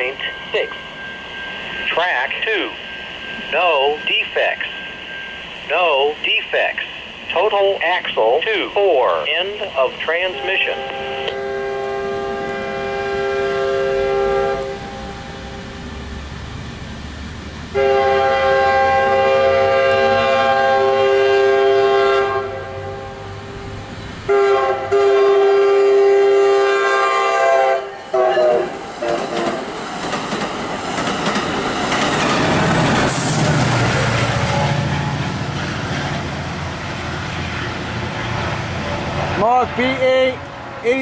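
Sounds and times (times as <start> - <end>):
train rumbling past: 0.0 - 41.0
train air horn blasts: 10.3 - 15.0, 17.8 - 23.2, 24.3 - 29.6.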